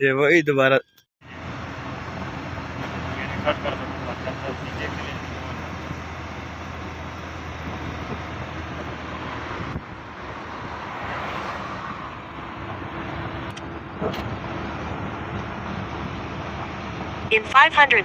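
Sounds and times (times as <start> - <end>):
car road and engine noise: 1.2 - 18.0.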